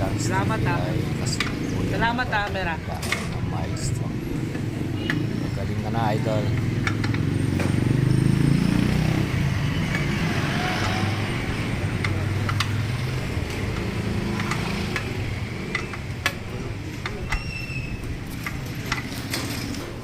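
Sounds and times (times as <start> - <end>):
sharp clicks: 10.8 - 19.1.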